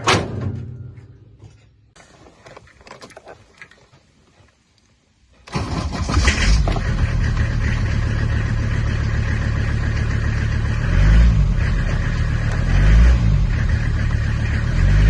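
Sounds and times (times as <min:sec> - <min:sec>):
diesel engine starting and running: 0:05.4 - 0:15.0.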